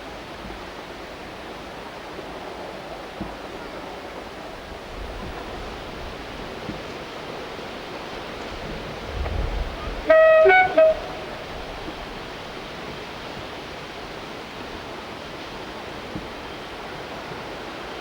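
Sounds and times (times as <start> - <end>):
locomotive two-tone horn: 9.8 - 12.0.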